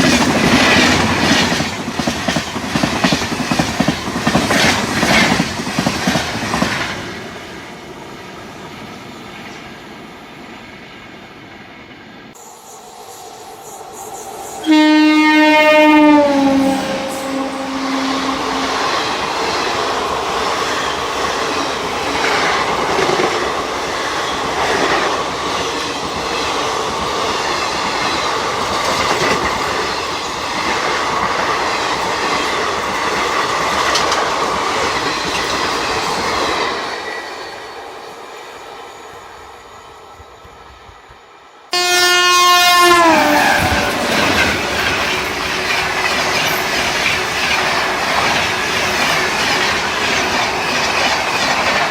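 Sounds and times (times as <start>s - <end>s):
train wheels clattering over rail joints: 0.0s - 7.0s, 28.0s - 36.6s, 44.1s - 51.9s
train horn: 14.6s - 19.1s, 41.7s - 45.0s.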